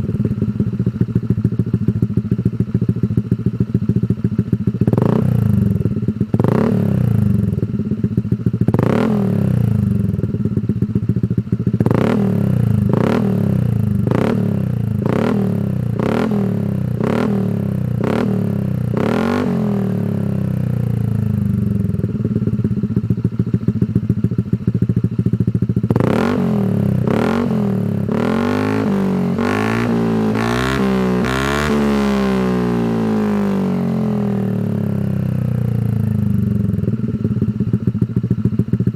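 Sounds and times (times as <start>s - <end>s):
scooter engine idling and revving: 0.0s - 38.9s.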